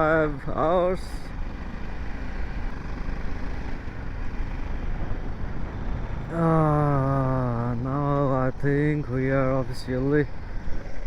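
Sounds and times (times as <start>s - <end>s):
man talking: 0.0s - 1.3s, 6.3s - 10.3s
motorcycle engine rumble: 0.0s - 11.0s.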